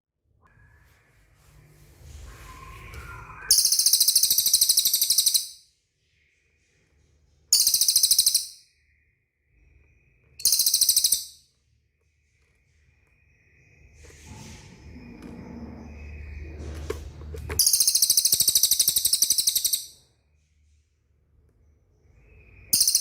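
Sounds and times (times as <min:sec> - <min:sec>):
bird rattling trill: 0:03.5 - 0:05.6, 0:07.5 - 0:08.6, 0:10.4 - 0:11.4, 0:17.5 - 0:20.0, 0:22.7 - 0:23.0.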